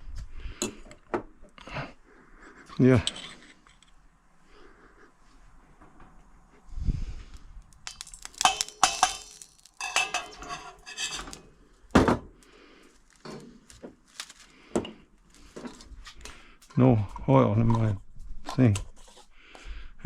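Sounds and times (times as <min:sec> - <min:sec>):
pots and cutlery clattering: 0:07.9 - 0:12.2.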